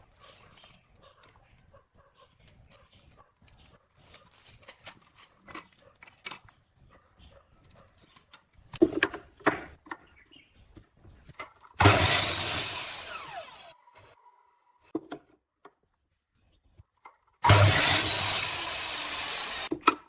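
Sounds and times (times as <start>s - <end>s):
tools and wood handled: 2.4s - 6.7s
power tool running: 11.8s - 14.1s, 17.4s - 19.7s.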